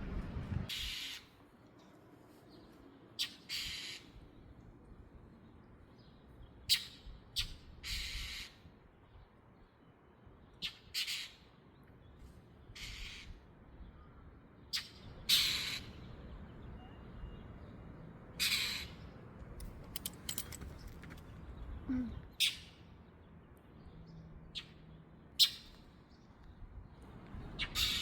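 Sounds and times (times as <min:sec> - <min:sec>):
bird squawking: 0:00.7 - 0:01.4, 0:03.2 - 0:04.2, 0:06.7 - 0:08.6, 0:14.7 - 0:16.1, 0:18.4 - 0:19.0, 0:27.6 - 0:28.0.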